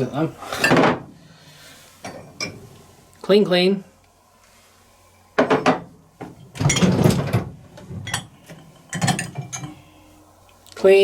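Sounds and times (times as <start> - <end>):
crockery clattering in a rack: 5.4 - 9.8.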